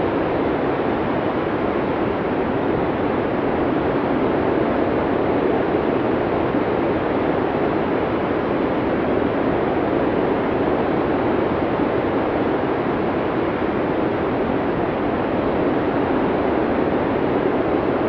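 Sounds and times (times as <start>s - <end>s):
steady rush of wind: 0.0s - 18.0s.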